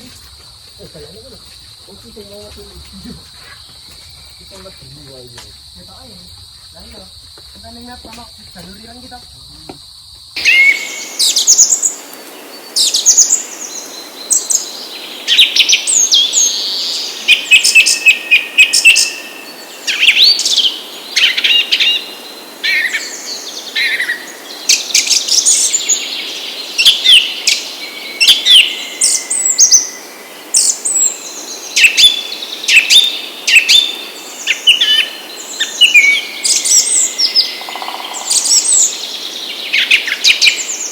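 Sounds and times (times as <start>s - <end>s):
birds chirping and singing: 0.0s - 9.8s, 10.4s - 40.9s.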